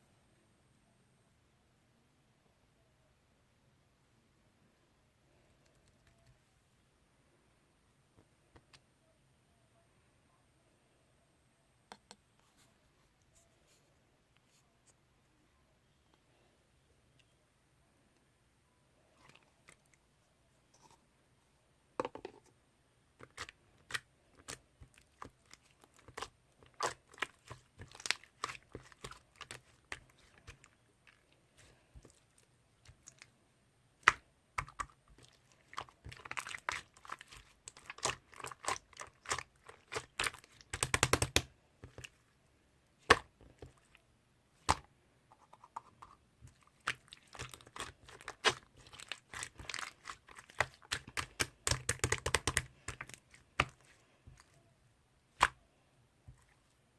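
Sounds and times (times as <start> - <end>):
slime crackling: 23.2 - 33.3, 34.0 - 42.2, 46.5 - 54.5
slime clicking and popping: 37.7 - 41.5, 46.8 - 53.8.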